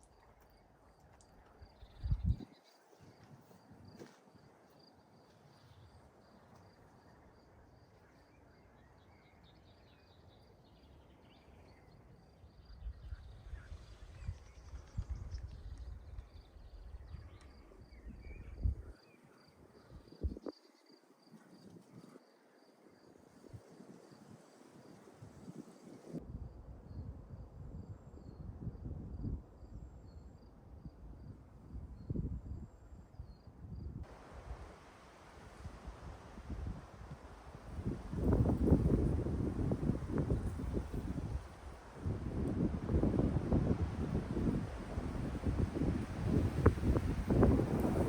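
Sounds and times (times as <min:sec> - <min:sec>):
cricket chirping: 0:00.0 - 0:14.8, 0:15.4 - 0:34.3.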